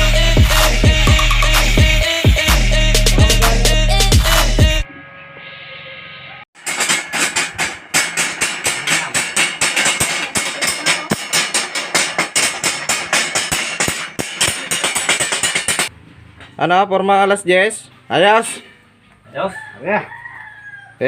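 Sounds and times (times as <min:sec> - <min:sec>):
rapid hammer blows on metal: 0:06.6 - 0:15.9.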